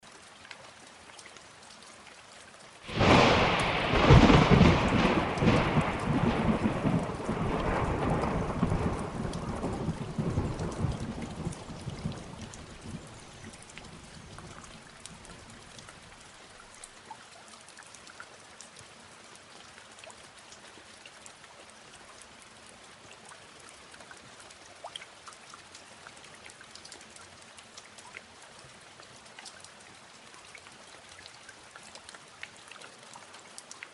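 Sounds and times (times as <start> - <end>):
steady rain: 0.0 - 33.9
water drips: 0.0 - 33.9
thunderclap rumbling: 2.9 - 13.2.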